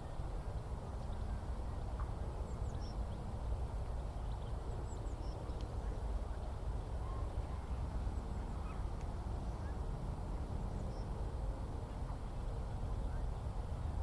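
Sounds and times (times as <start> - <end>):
small birds chirping: 0.9 - 6.6.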